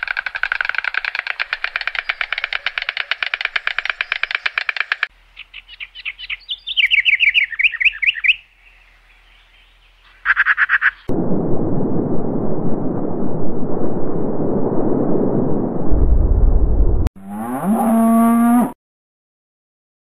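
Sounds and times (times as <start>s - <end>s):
stork clattering its bill: 0.0s - 5.1s
songbird chirping: 1.8s - 11.1s.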